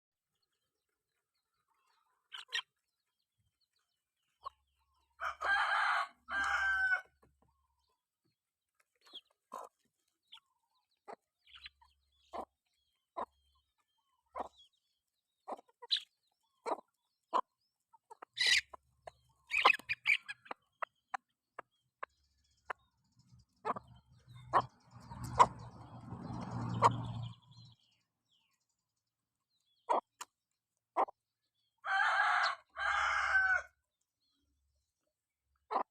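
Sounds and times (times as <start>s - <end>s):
chickens clucking: 1.5s - 8.0s, 8.8s - 27.9s, 29.6s - 33.6s, 35.6s - 35.9s
rooster crowing: 5.2s - 7.1s, 31.8s - 33.7s.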